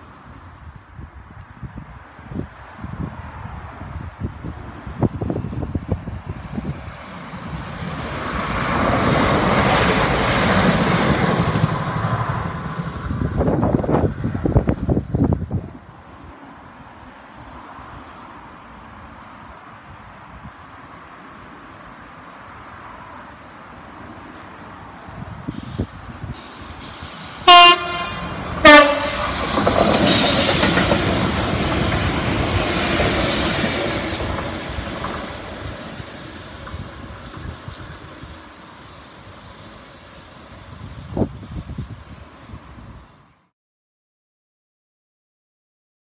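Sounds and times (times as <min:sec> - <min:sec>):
train rumbling and clattering past: 0:03.1 - 0:16.9, 0:25.1 - 0:43.2
train horn blasts: 0:27.4 - 0:29.4.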